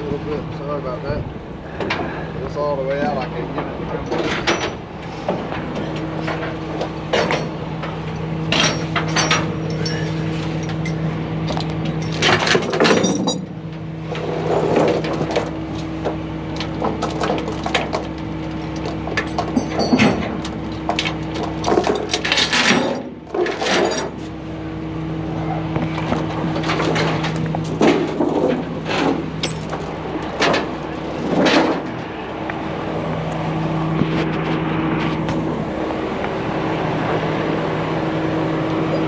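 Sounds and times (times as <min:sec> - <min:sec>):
heavy truck engine running: 0:00.0 - 0:39.0
metal clanks and knocks: 0:03.0 - 0:24.3, 0:25.9 - 0:32.1.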